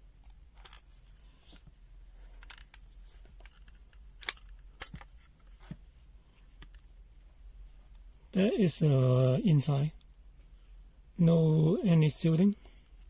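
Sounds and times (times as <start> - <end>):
plastic case clicks and scrapes: 0.2 - 1.7, 2.3 - 5.8.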